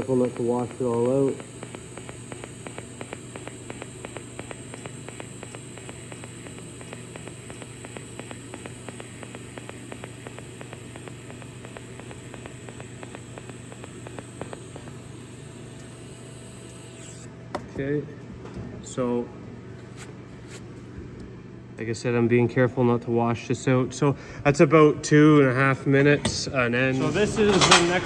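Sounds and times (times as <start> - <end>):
quick regular ticking: 0.0 - 17.3
welding arc hiss and hum: 0.0 - 18.0.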